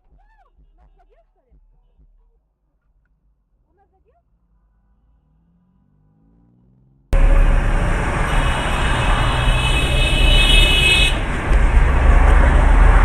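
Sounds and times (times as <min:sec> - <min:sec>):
high-pitched tone: 0:07.2 - 0:11.0
road traffic rumble: 0:07.2 - 0:13.0.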